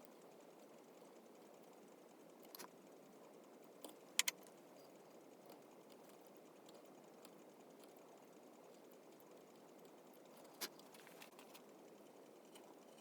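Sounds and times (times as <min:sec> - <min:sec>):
carving tools clicking on wood: 0:03.6 - 0:13.0.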